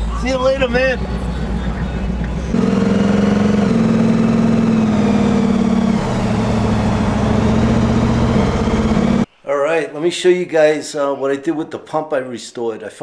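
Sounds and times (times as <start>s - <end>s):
car engine running at low revs: 0.0s - 9.3s.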